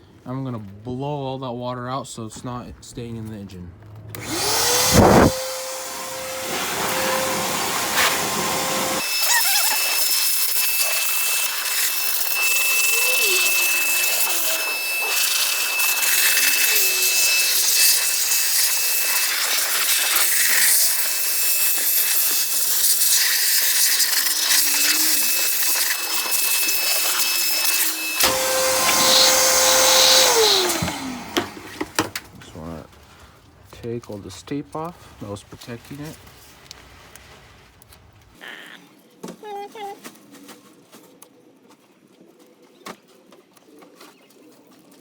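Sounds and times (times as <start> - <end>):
vacuum cleaner motor whining: 4.1 - 33.3
thin steady whistle: 9.0 - 20.3, 23.5 - 30.7.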